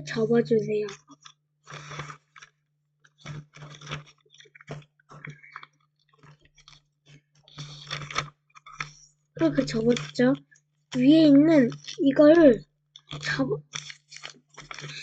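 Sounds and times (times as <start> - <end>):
paper rustling and crinkling: 3.1 - 10.3, 13.0 - 15.0.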